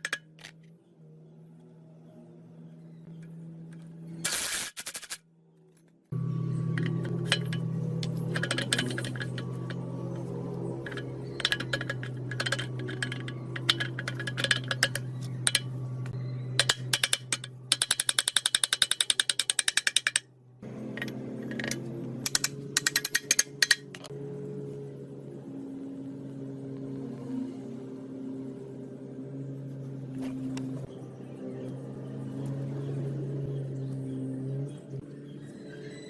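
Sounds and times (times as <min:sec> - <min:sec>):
steady low hum: 0:00.0 - 0:18.8
metal tools clicking and clinking: 0:06.7 - 0:15.7, 0:16.6 - 0:20.2, 0:20.9 - 0:24.1
fast run of clicks: 0:10.8 - 0:15.7, 0:16.6 - 0:20.3.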